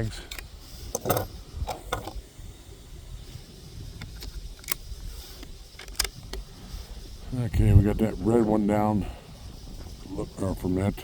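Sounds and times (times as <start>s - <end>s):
rifle bolt metallic clicks: 4.0s - 4.9s, 5.8s - 6.4s.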